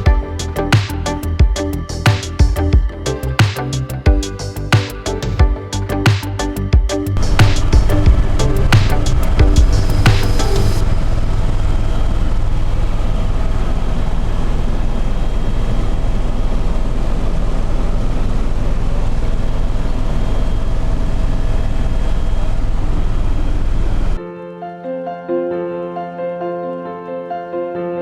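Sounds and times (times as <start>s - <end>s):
soft piano music: 0.0s - 10.9s, 24.2s - 28.0s.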